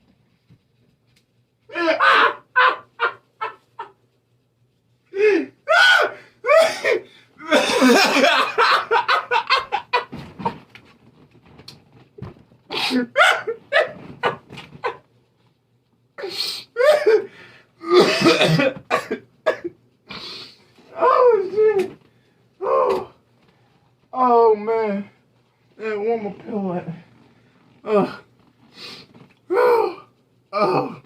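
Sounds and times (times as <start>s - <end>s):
man laughing hard: 1.7s - 4.0s, 7.4s - 10.1s
man coughing: 6.5s - 8.7s, 12.7s - 15.0s, 16.8s - 19.8s.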